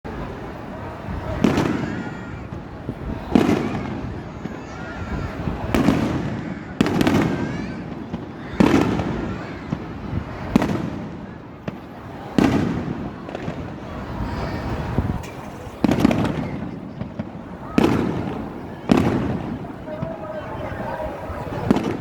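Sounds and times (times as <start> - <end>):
firework shells booming: 1.2 - 22.0.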